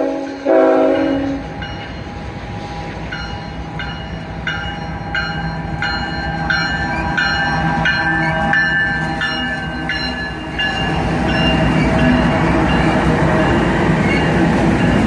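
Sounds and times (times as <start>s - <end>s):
diesel locomotives rumbling: 0.0s - 15.0s
container cars passing: 1.4s - 15.0s
bell dinging: 3.2s - 13.6s.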